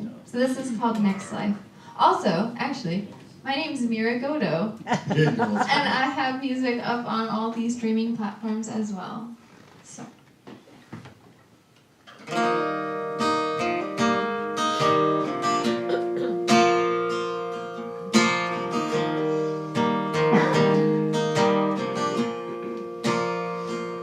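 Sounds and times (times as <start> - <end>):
acoustic guitar picked and strummed: 12.0 - 24.0.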